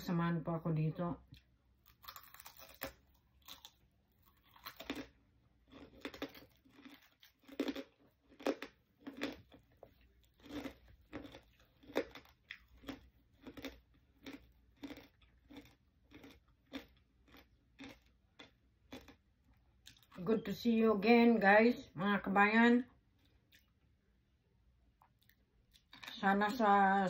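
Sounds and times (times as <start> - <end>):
chewing crispy pork rinds: 1.3 - 20.3, 25.0 - 26.6.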